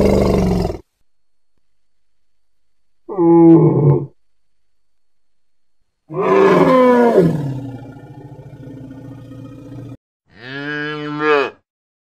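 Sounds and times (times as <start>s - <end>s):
elephant roaring: 0.0s - 0.8s, 6.1s - 11.6s
cow mooing: 6.1s - 11.6s.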